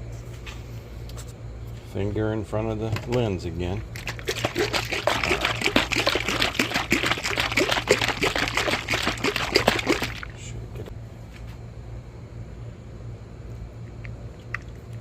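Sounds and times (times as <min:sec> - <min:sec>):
steady low hum: 0:00.0 - 0:15.0
liquid glugging from bottle: 0:03.8 - 0:10.4.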